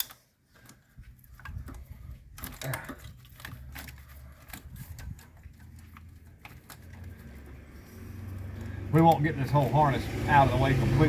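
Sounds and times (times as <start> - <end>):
clicks and knocks of hand work: 0.0 - 7.7.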